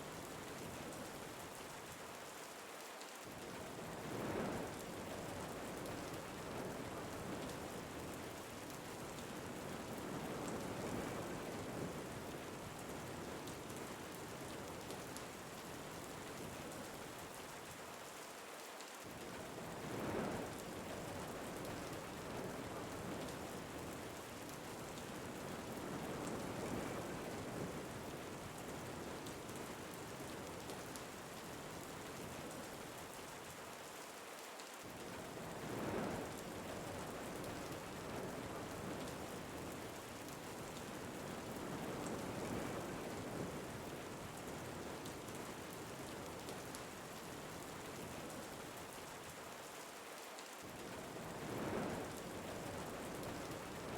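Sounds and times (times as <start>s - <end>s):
steady rain: 0.0s - 53.9s
wind gusts: 19.5s - 30.6s, 35.0s - 46.8s, 50.9s - 53.9s.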